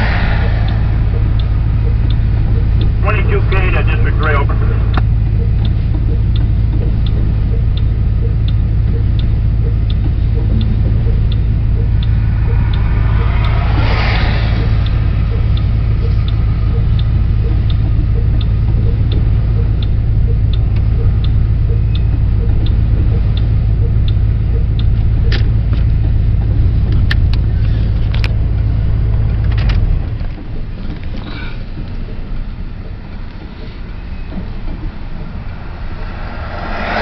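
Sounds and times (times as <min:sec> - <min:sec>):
freight train rolling past: 0:00.0 - 0:02.3, 0:33.8 - 0:37.0
light regular ticking: 0:00.0 - 0:37.0
vehicle engine idling: 0:00.0 - 0:37.0.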